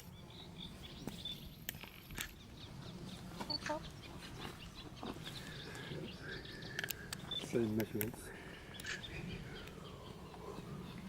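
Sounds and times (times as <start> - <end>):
birds chirping: 0.0 - 11.0
low bird call: 0.0 - 11.0
sharp clicks: 6.7 - 8.2.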